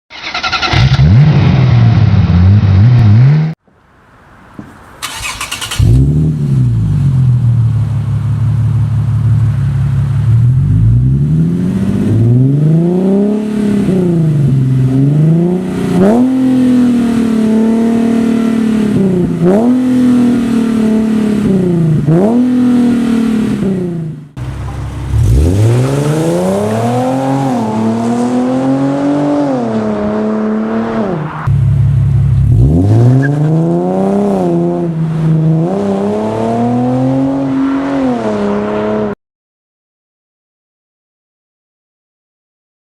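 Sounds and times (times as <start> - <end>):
engine cranking: 0.1 - 1.1, 5.0 - 6.0
car engine revving: 0.2 - 3.6, 5.0 - 39.2
car engine idling: 3.9 - 10.7, 24.4 - 25.7, 31.5 - 32.6.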